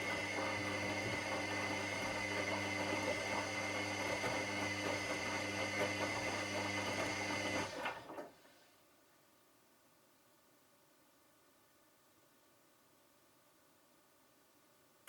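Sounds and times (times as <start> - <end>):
washing machine running: 0.0 - 8.3.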